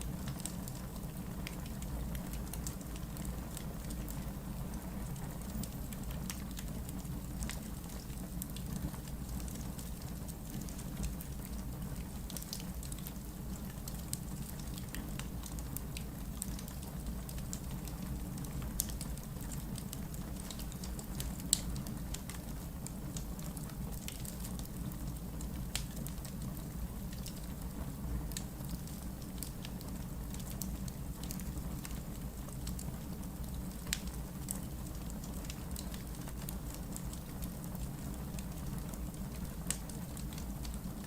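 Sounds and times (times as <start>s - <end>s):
fire crackles and pops: 0.0s - 41.0s.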